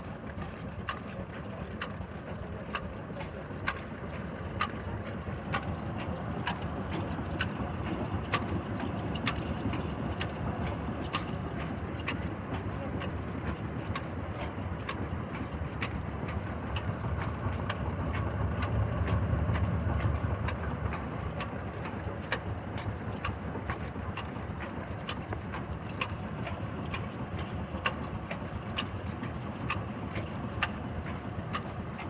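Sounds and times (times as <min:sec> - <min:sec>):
diesel engine knocking: 0:13.0 - 0:26.0.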